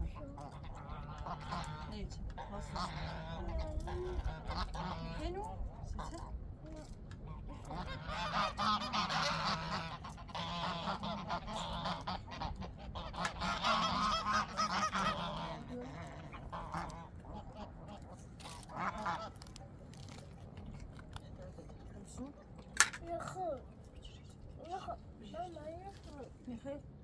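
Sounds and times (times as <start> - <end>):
poultry calling: 0.4 - 5.2, 7.3 - 19.4.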